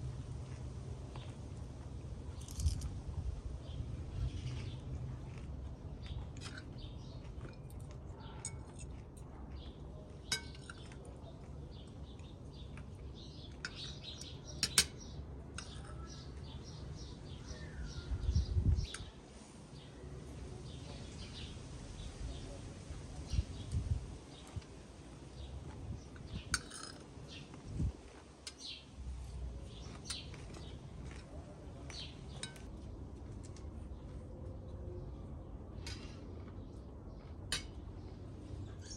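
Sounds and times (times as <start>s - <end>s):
small birds chirping: 2.3s - 38.9s
birds chirping: 9.5s - 22.6s
cutlery clinking against dishes: 10.2s - 11.0s, 13.6s - 16.2s, 26.4s - 27.0s.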